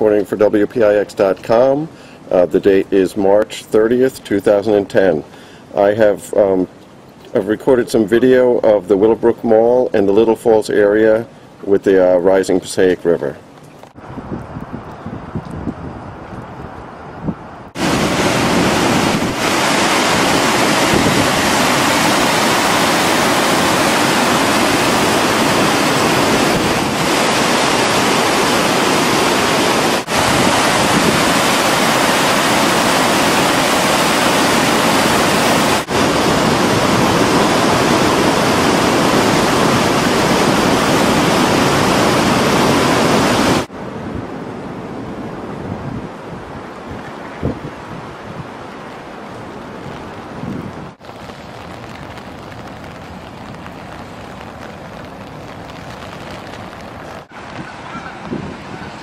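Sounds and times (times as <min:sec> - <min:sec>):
rushing river high water: 0:16.4 - 0:59.0.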